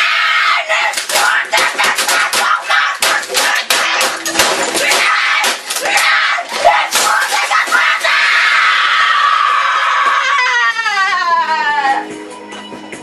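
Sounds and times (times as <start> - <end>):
fists hammering a keyboard: 1.0 - 8.0
boy screaming in rage: 6.0 - 11.7.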